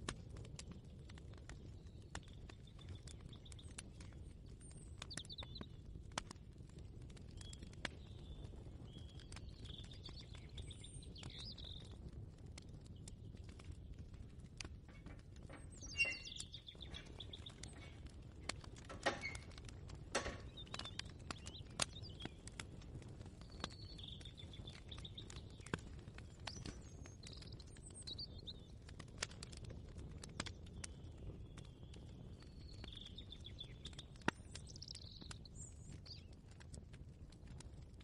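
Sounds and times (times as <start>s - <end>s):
bird chirping: 14.9s - 19.5s, 20.2s - 22.4s, 23.5s - 25.8s
kitchen clicks and knocks: 18.9s - 19.4s, 20.2s - 20.6s.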